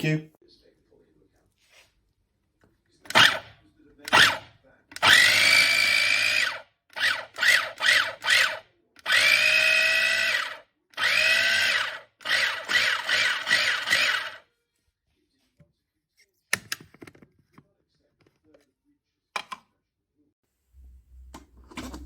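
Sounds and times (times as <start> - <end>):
mini chopper motor pulsing: 5.0 - 14.4.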